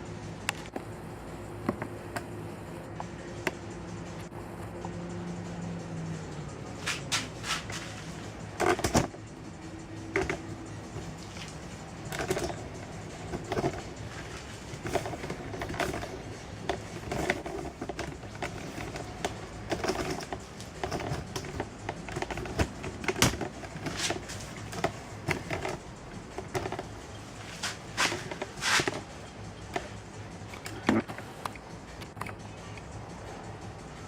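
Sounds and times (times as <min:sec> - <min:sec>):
hand tools clicking on metal: 0:06.8 - 0:33.0.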